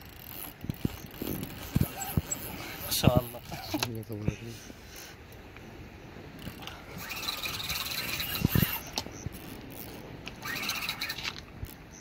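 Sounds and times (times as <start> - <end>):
fishing reel drag buzzing: 0.0 - 3.6, 6.3 - 12.0.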